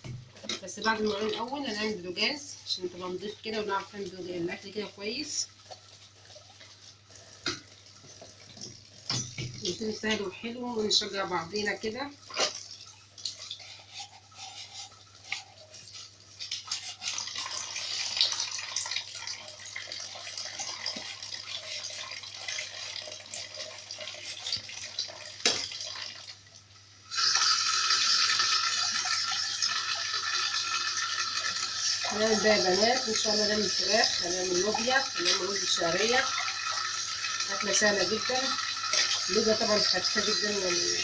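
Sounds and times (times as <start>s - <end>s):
tap water running into sink: 3.5s - 41.0s
dishes being scrubbed: 12.3s - 18.3s.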